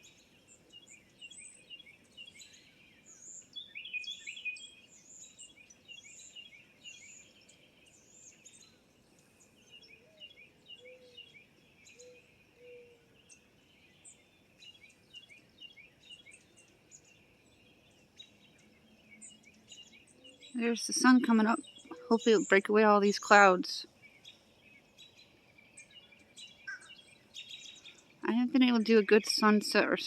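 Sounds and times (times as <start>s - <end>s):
songbirds chirping and singing: 0.0s - 30.0s.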